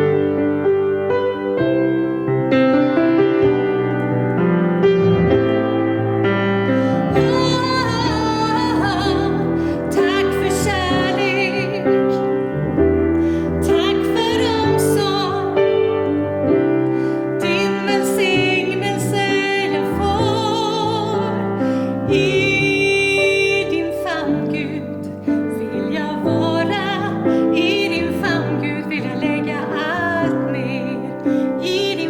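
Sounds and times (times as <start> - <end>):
piano accompaniment: 0.0 - 32.0
woman singing with vibrato: 7.0 - 12.5, 13.5 - 15.8, 17.4 - 32.0.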